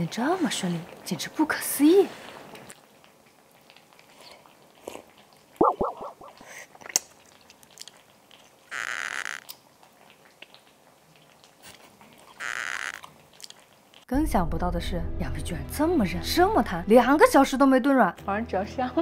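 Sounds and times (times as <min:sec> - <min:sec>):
chewing tough meat skin: 0:02.6 - 0:14.1
short squeaky sounds: 0:08.7 - 0:09.5, 0:12.3 - 0:13.1.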